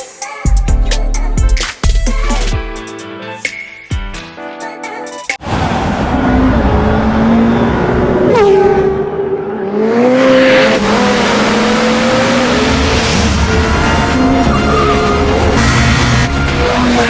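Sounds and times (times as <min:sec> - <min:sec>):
car engine revving hard: 0:05.4 - 0:17.0
tyres squealing: 0:13.6 - 0:17.0.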